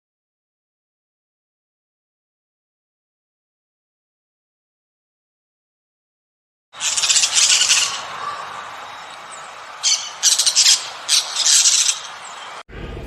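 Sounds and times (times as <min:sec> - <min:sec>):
bird squawking: 0:06.8 - 0:12.6.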